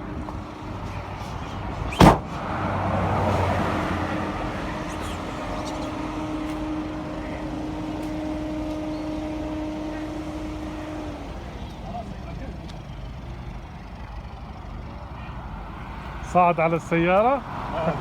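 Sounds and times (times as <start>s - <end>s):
car passing: 0.0s - 18.0s
engine hum: 0.0s - 18.0s
loud thump: 1.9s - 2.4s.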